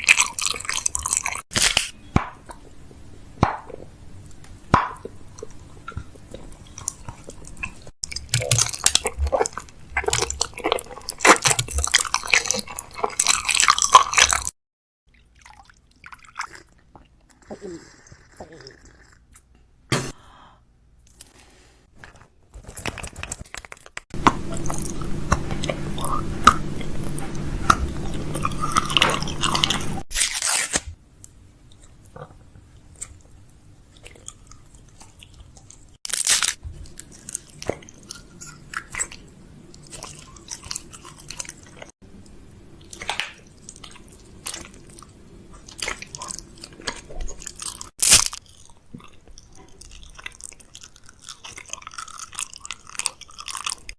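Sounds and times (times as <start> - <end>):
plastic packaging crinkling: 22.5 - 24.0, 36.1 - 37.5.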